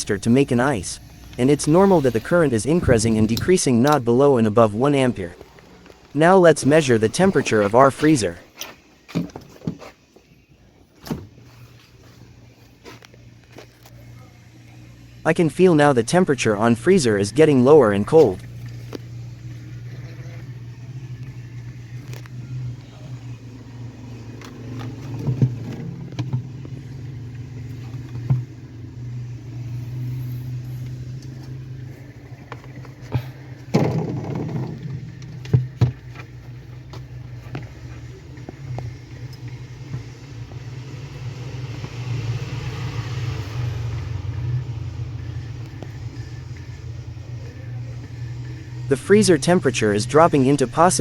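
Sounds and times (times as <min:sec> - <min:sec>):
refrigerator compressor humming: 0:00.0 - 0:51.0
knocks and clatters: 0:32.4 - 0:37.8.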